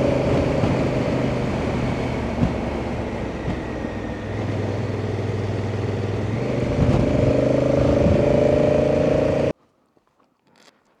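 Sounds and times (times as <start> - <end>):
motorcycle engine running: 0.0 - 9.5
wind rushing: 6.1 - 8.8.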